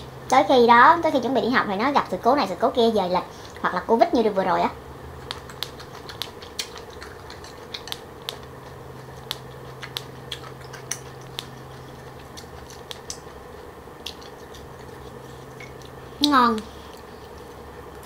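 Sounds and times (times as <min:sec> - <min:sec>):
low background hum: 0:00.0 - 0:18.0
crunchy chewing: 0:05.1 - 0:18.0.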